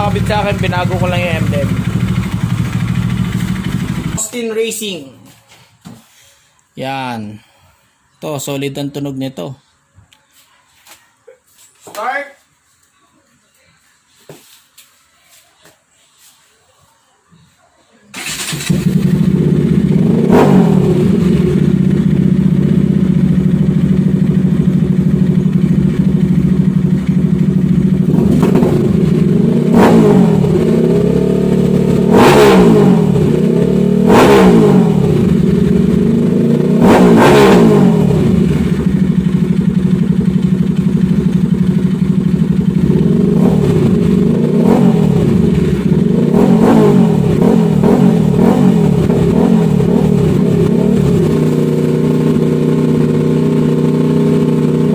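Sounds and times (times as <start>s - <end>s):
motorcycle engine idling: 0.0s - 4.2s, 18.2s - 32.1s, 33.1s - 36.8s, 37.8s - 54.9s
motorcycle throttle revs: 18.2s - 54.9s.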